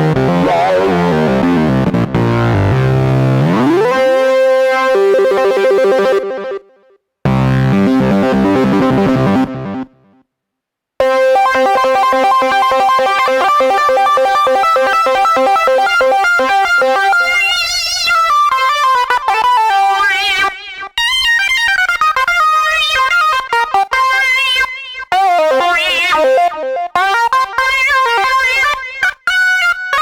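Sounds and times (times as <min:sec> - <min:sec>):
sequenced synthesizer note pattern: 0:00.0 - 0:06.5
wobbling pitch-modulated synth tones: 0:00.2 - 0:04.4.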